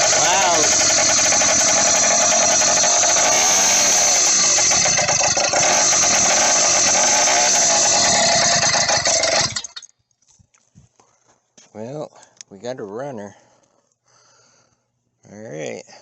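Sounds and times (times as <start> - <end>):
two-stroke engine running loud: 0.0 - 9.8.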